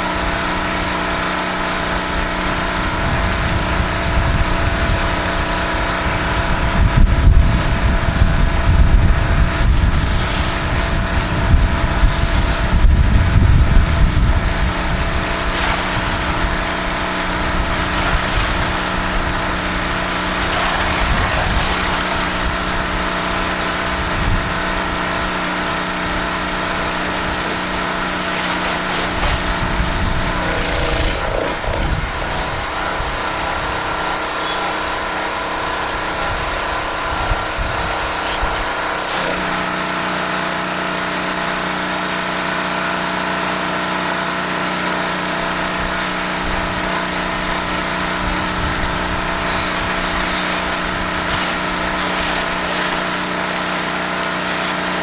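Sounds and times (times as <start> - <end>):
pressure washer engine running: 0.0 - 55.0
high-pressure spray hissing: 9.9 - 13.2, 13.9 - 16.5, 17.6 - 22.6, 26.7 - 31.6, 37.9 - 39.6, 47.4 - 55.0.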